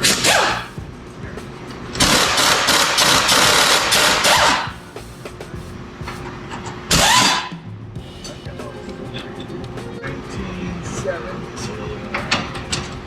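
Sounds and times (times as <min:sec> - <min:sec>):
power wrench running: 0:01.9 - 0:06.3.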